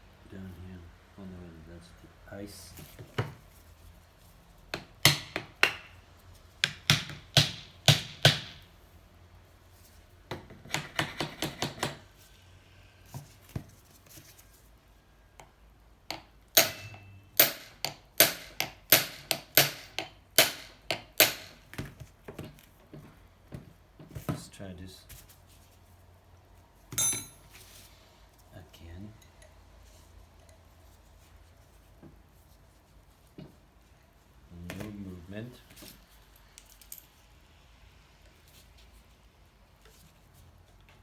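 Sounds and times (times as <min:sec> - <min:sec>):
hammer striking metal engine: 0:16.5 - 0:21.5.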